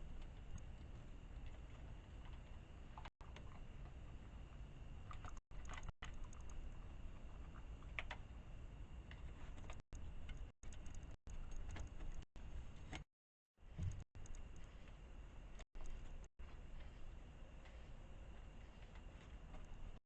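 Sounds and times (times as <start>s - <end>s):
faint clicks and taps: 9.1s - 13.1s.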